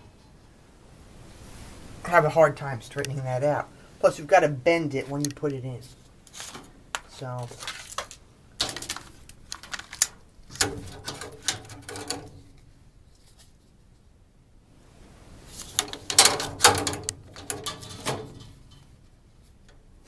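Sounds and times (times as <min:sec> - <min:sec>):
plastic filter scraping and rattling: 0:06.3 - 0:12.6, 0:15.6 - 0:19.0.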